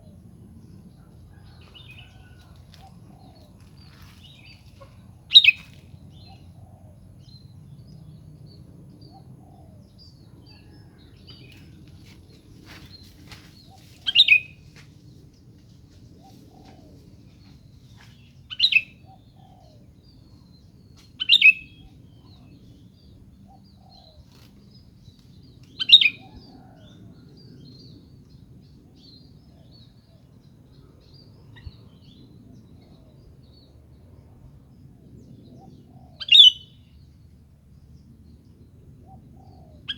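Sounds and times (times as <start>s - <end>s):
bird calling: 1.3s - 6.4s, 36.2s - 36.7s.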